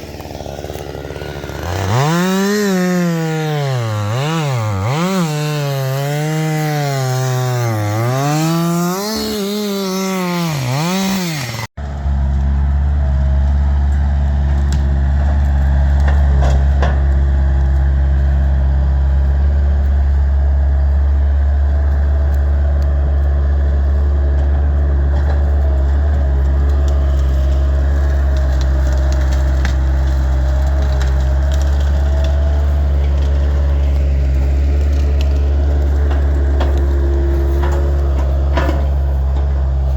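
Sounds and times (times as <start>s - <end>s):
chainsaw revving and cutting: 0.0s - 11.8s, 13.6s - 39.9s
low engine drone: 11.8s - 39.9s
small wood cracks: 13.4s - 18.5s, 21.6s - 39.9s.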